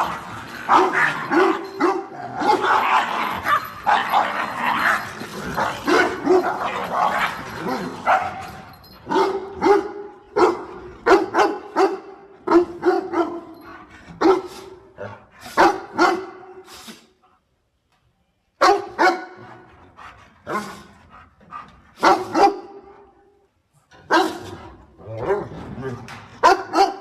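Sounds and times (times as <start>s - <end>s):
dog barking: 8.0s - 8.4s, 9.1s - 13.5s, 15.6s - 16.6s, 18.6s - 19.5s, 22.0s - 22.9s, 24.1s - 24.5s, 26.4s - 27.0s.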